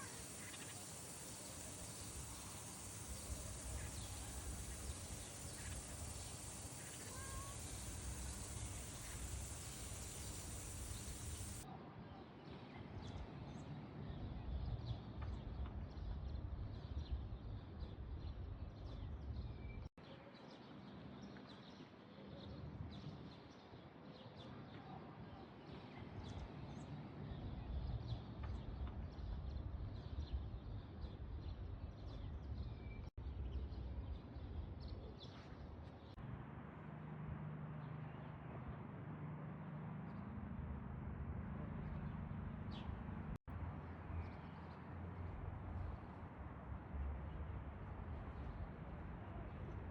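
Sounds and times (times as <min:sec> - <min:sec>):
low outdoor rumble: 0:00.0 - 0:11.6
small birds chirping: 0:00.0 - 0:11.6.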